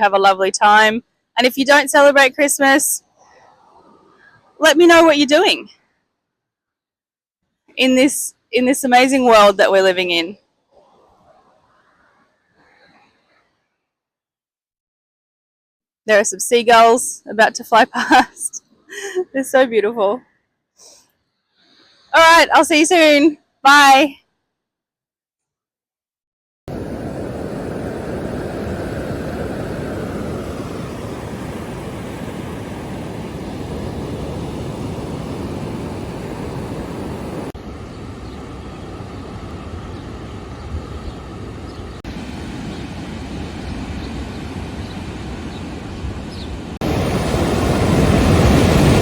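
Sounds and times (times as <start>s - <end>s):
wind: 0.0s - 6.0s, 7.4s - 13.8s, 16.1s - 24.2s, 26.7s - 49.0s
beach surf rushing: 26.7s - 49.0s.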